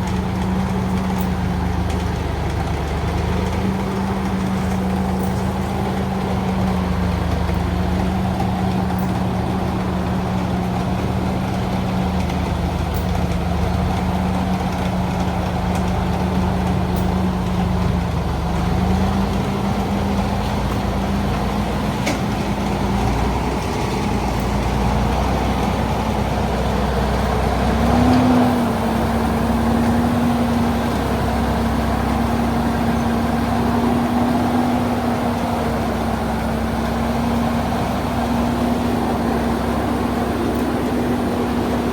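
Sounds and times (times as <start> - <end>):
truck engine droning: 0.0 - 41.9.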